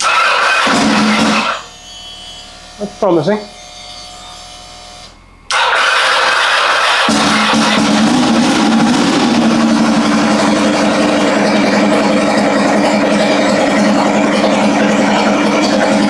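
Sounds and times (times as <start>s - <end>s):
motorcycle engine idling: 7.1s - 16.0s.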